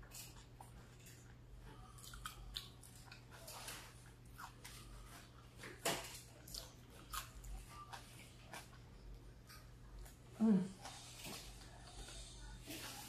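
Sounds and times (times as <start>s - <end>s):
chewing with wet mouth clicks: 0.0s - 3.6s, 6.2s - 10.2s.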